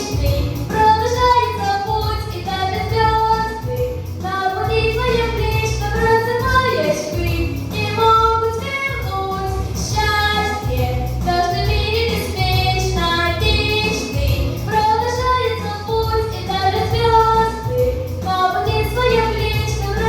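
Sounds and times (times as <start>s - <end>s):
girl singing: 0.0s - 20.0s
instrumental backing track: 0.0s - 20.0s.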